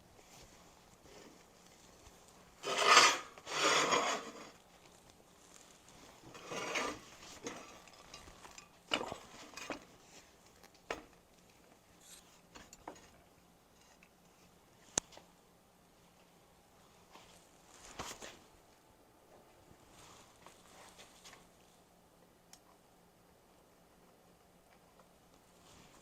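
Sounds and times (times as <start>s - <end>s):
rasping scraping strokes: 2.6s - 4.6s, 6.2s - 7.6s.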